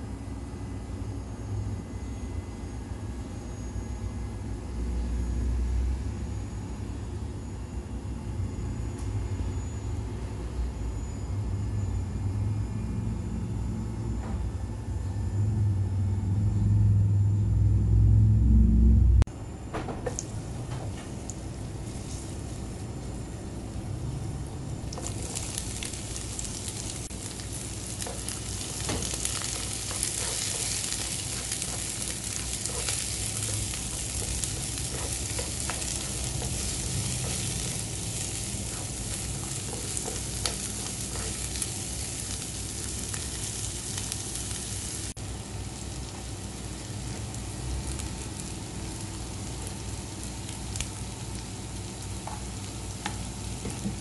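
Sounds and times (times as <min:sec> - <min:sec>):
food sizzling in hot oil: 0:24.8 - 0:54.0
spatula scraping wok: 0:28.0 - 0:42.3.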